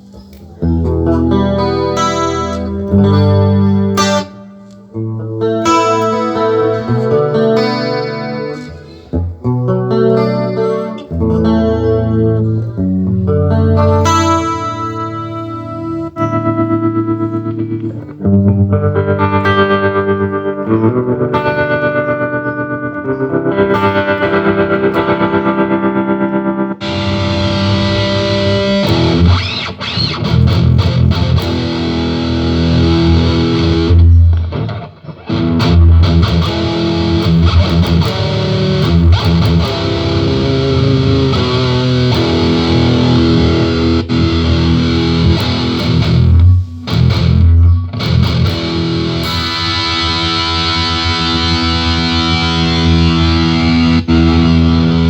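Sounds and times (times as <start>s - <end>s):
distorted electric guitar: 0.0s - 55.0s
pulsing effected guitar notes: 0.0s - 55.0s.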